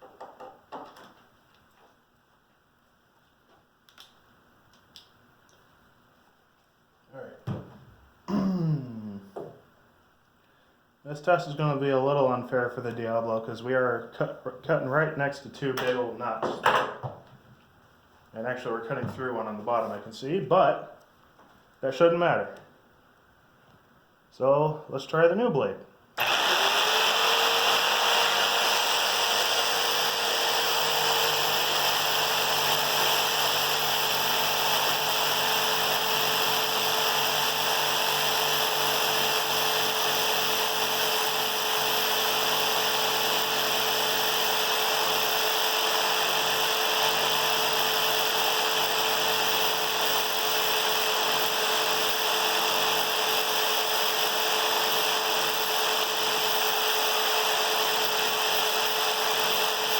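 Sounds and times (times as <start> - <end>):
jigsaw sawing through wood: 26.2 - 59.9.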